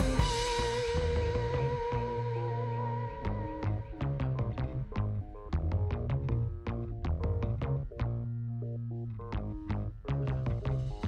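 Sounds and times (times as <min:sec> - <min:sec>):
steady drum beat: 0:00.0 - 0:02.2
held bass note: 0:00.0 - 0:11.0
synthesizer: 0:00.0 - 0:11.0.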